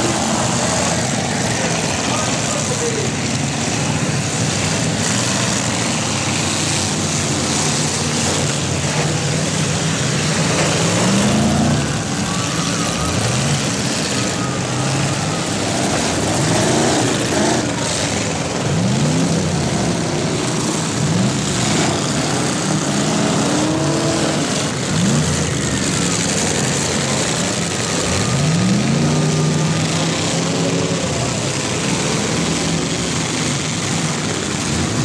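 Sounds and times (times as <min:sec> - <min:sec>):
car engines revving: 0:00.0 - 0:35.0.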